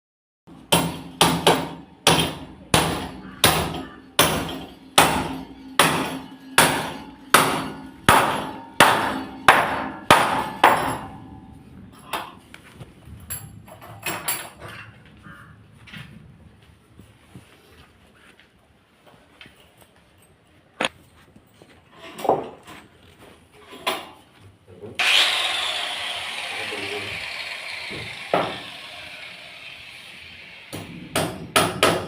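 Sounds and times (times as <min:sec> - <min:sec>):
hammer blows with ringing decay: 0:00.8 - 0:11.5.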